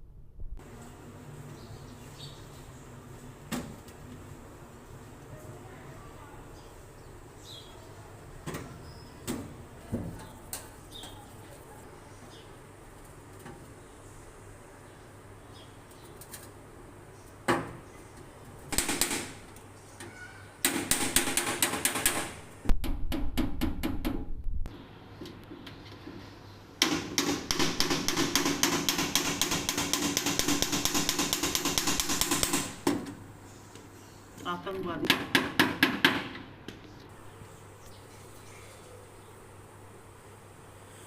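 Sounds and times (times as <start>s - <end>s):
hammer knocking tin cans: 26.8s - 32.9s.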